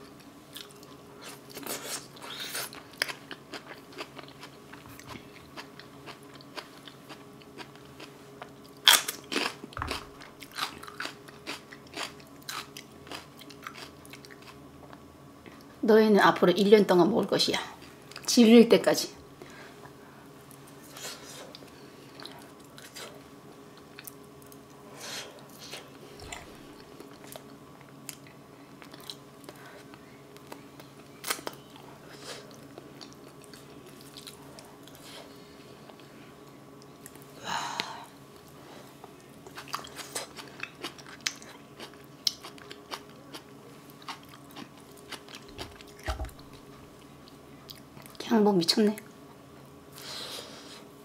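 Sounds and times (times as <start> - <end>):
person chewing food: 0.0 - 15.7, 20.8 - 36.2, 38.4 - 48.2.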